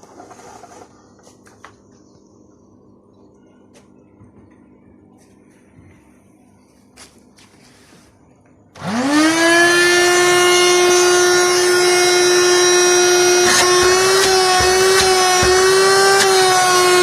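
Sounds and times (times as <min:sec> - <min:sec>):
vacuum cleaner motor whining: 0:08.8 - 0:17.0.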